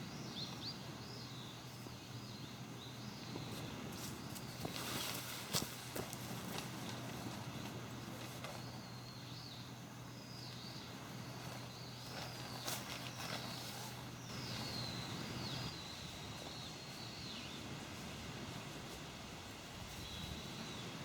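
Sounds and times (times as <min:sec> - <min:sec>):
faint outdoor hiss: 0:00.0 - 0:21.0.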